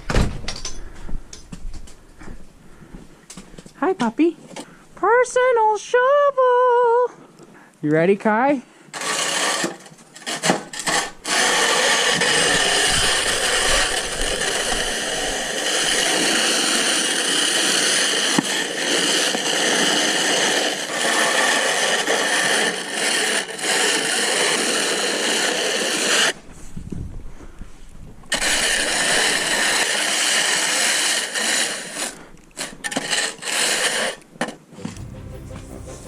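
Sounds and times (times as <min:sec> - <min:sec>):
snow shovel scraping snow: 0:08.9 - 0:26.4, 0:28.3 - 0:34.2.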